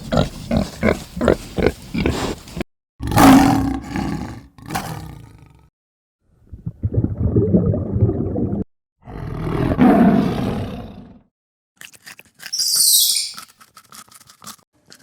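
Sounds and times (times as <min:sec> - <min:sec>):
big cat roaring: 0:03.0 - 0:05.7, 0:09.0 - 0:11.2
high-pitched squeal: 0:12.5 - 0:13.5.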